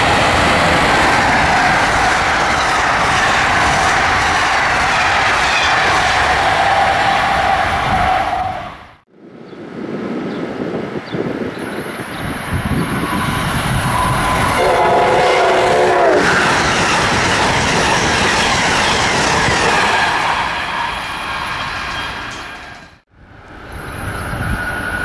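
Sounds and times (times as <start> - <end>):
rush of wheel and rail noise: 0.0 - 25.0
train horn blast: 13.0 - 16.5.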